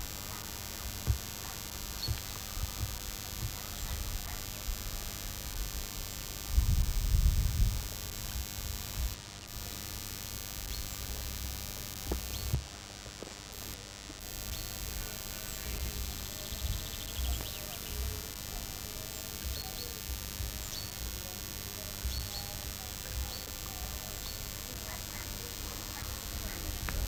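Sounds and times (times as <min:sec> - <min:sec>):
steady microphone hiss: 0:00.0 - 0:27.0
small birds chirping: 0:01.0 - 0:04.6, 0:12.1 - 0:12.6, 0:14.4 - 0:18.3, 0:19.0 - 0:21.2, 0:22.0 - 0:27.0.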